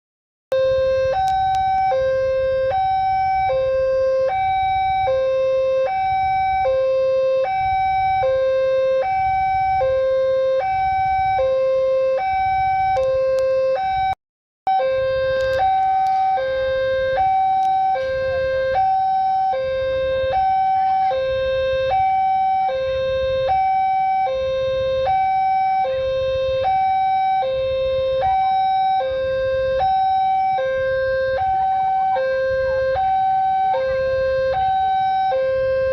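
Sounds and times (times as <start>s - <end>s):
two-tone hi-lo siren: 0.5s - 35.9s.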